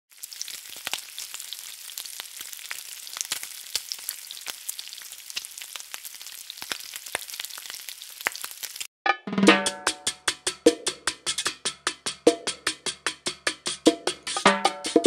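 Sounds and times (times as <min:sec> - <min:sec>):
food sizzling in hot oil: 0:00.1 - 0:08.9.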